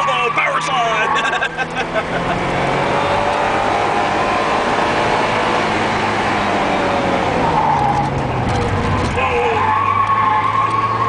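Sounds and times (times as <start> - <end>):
road and tyre noise: 0.0 - 11.0
car engine pulling under load: 1.1 - 11.0.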